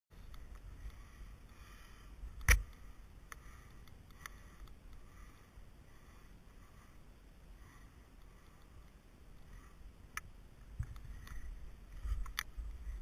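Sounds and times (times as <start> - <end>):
faint ticks: 0.2 - 5.2, 7.6 - 13.0.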